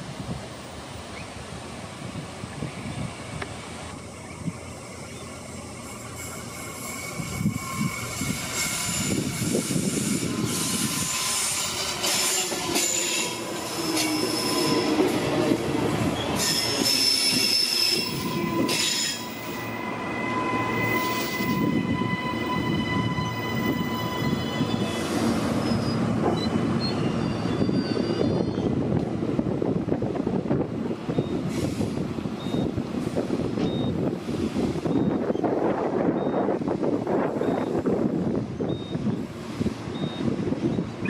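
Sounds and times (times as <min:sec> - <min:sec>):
train wheel and rail rumble: 0:00.0 - 0:41.0.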